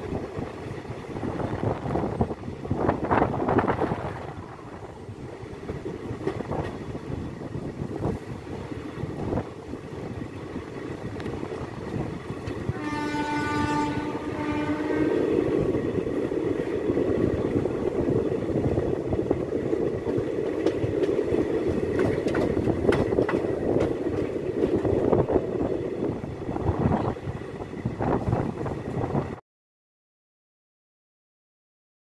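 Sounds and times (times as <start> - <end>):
wheels rumbling over track: 0.0 - 29.4
train horn: 12.6 - 15.4
clatter over rail joints: 16.0 - 25.4.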